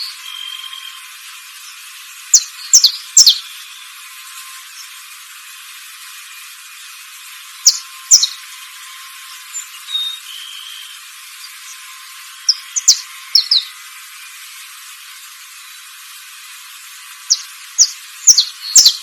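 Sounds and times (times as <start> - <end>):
steady high hiss: 0.0 - 19.0
sharp downward bird calls: 1.6 - 3.8, 7.6 - 8.4, 9.5 - 13.8, 17.2 - 19.0.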